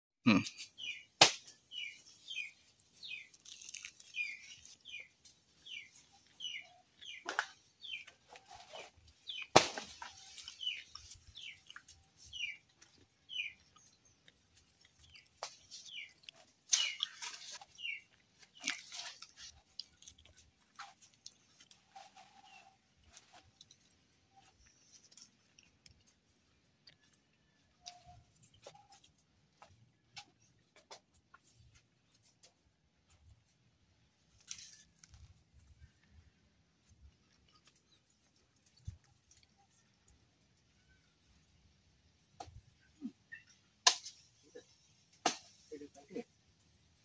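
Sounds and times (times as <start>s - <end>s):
bird chirping: 0.3s - 21.0s
banana leaves cracking and rustling: 1.2s - 26.3s, 34.1s - 36.2s.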